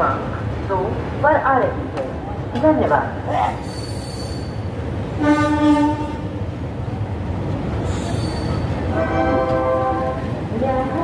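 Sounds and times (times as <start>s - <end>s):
train coach rumbling: 0.0s - 11.0s
train horn: 5.2s - 6.3s, 8.9s - 10.3s.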